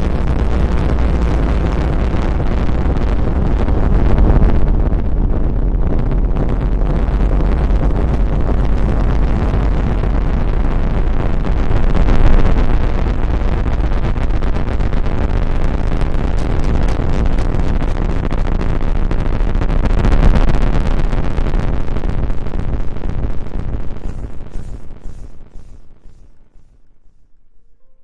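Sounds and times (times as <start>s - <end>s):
rustling and rubbing on microphone: 24.0s - 27.7s.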